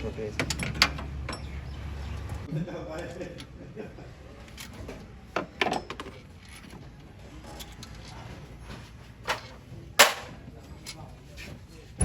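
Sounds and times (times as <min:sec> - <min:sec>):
hand tools knocking on metal: 0:09.3 - 0:10.3.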